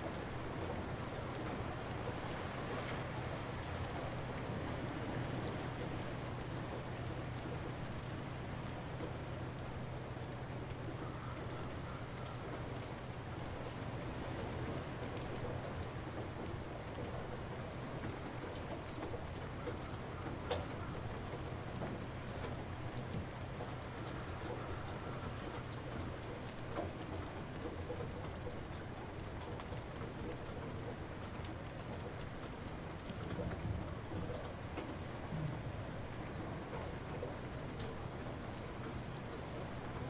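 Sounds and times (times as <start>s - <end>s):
light rain pattering: 0.0s - 40.0s.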